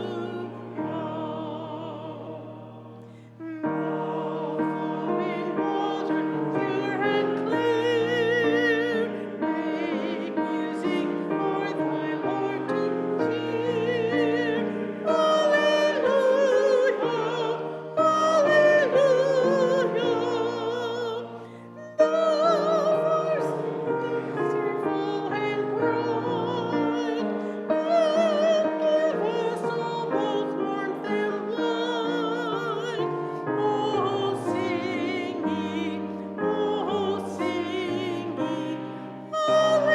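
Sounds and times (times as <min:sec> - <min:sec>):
piano accompaniment: 0:00.0 - 0:39.9
vocal group singing: 0:00.0 - 0:39.9.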